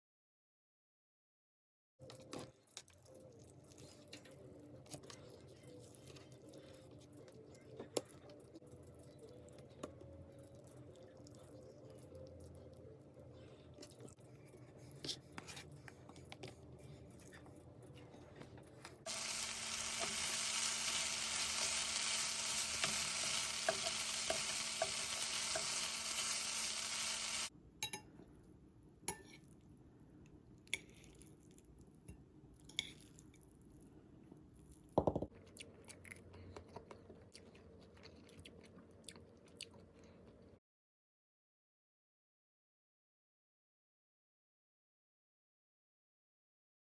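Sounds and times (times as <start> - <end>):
food sizzling in hot oil: 19.1 - 27.5.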